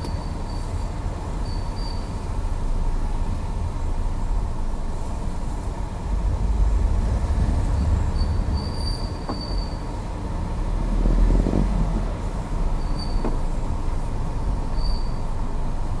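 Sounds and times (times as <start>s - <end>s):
high-pitched steering squeal: 1.4s - 2.2s, 7.6s - 10.2s, 12.7s - 13.5s, 14.7s - 15.4s
steady low rumble: 2.2s - 12.8s.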